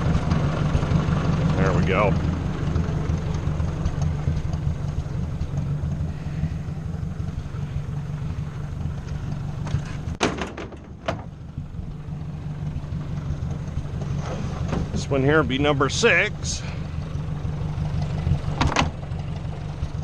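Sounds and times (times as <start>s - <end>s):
tractor engine running: 0.0s - 20.0s
sharp engine knocks: 9.0s - 11.5s, 13.0s - 15.2s, 18.0s - 19.1s.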